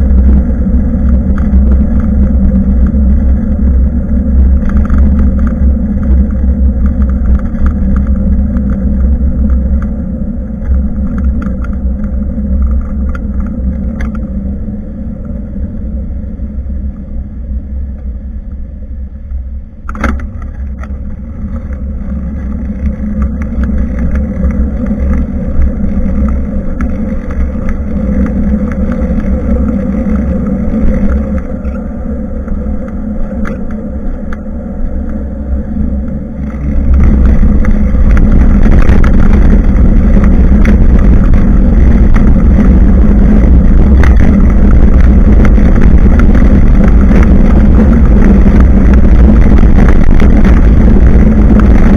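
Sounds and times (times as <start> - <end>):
harsh rushing noise: 0.0 - 17.9, 19.8 - 51.9
wind buffeting microphone: 0.0 - 18.6, 19.9 - 51.9
road rumble: 0.0 - 51.9
sharp click: 19.8 - 21.0.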